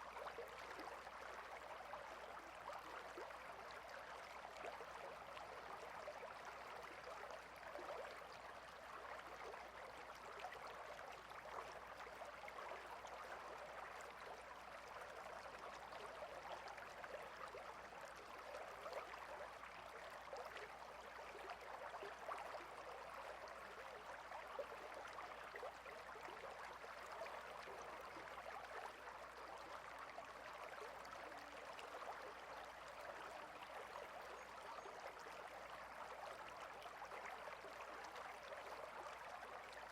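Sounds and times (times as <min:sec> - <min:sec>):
stream babbling: 0:26.6 - 0:39.9.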